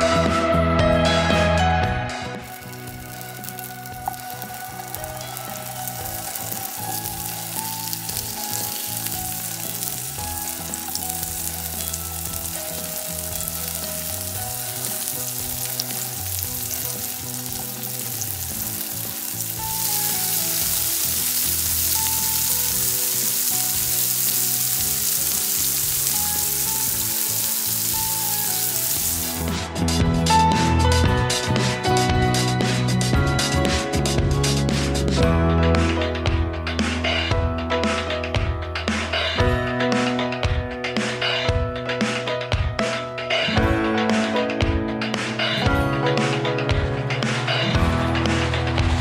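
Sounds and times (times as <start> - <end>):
gourds frying in hot oil: 2.4 - 29.5.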